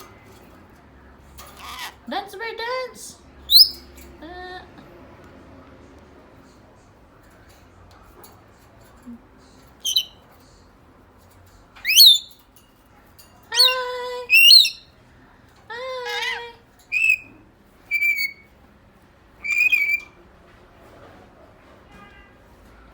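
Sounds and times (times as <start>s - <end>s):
parrot squawks and whistles: 9.8s - 10.2s, 11.8s - 12.3s, 16.9s - 17.3s, 17.9s - 18.5s, 19.4s - 20.1s.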